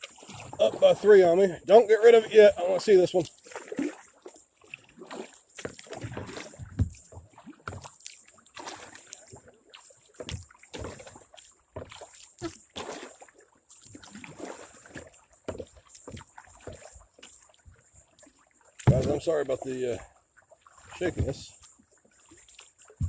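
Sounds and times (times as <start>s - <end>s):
paddle splashing water: 0.0s - 23.0s
knocks against kayak hull: 18.8s - 19.2s.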